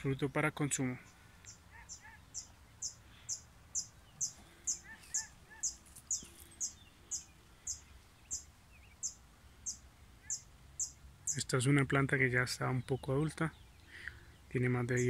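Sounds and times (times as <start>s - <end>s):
fainter lower bird calls: 0.9s - 11.6s, 12.6s - 15.0s
bird repeating high chirp: 1.5s - 11.5s.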